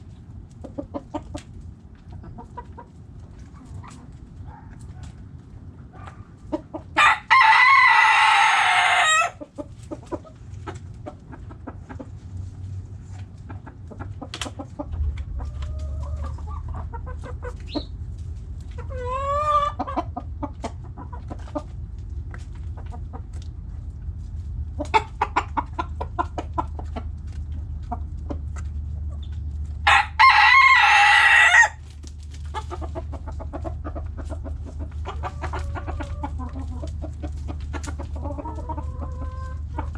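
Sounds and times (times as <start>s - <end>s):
hens clucking: 0.0s - 39.9s
low steady hum: 0.0s - 39.9s
rooster crowing: 7.0s - 9.4s, 29.8s - 31.8s.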